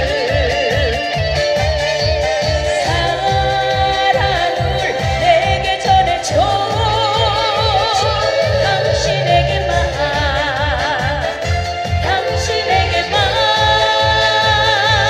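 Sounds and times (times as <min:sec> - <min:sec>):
backing track with bass beat: 0:00.0 - 0:15.0
person singing with vibrato: 0:00.0 - 0:15.0.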